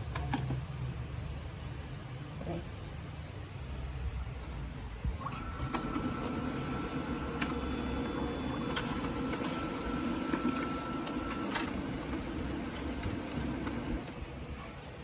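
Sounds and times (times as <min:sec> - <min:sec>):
copier mechanical hum: 0:00.0 - 0:15.0
copier high whine: 0:05.2 - 0:15.0
paper feed clicks: 0:05.3 - 0:14.2.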